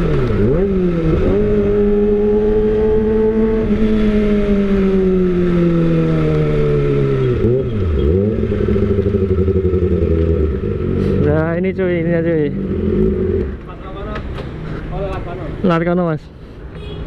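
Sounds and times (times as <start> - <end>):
motorcycle engine revving: 0.0 - 13.6.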